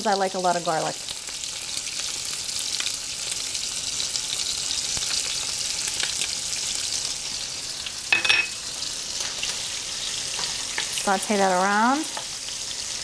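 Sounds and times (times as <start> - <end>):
food sizzling in oil: 0.0 - 13.0
utensil hitting pan: 8.1 - 8.6.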